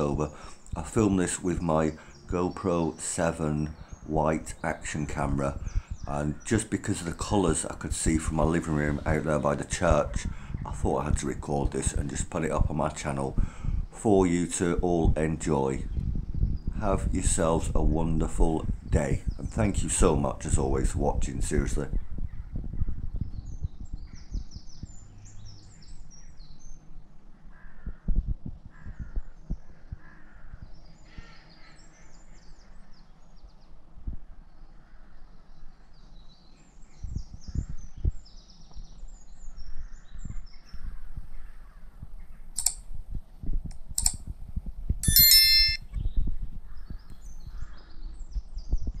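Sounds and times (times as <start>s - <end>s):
small birds chirping: 0.0s - 42.8s, 45.0s - 49.0s
harsh bird call: 45.0s - 45.8s.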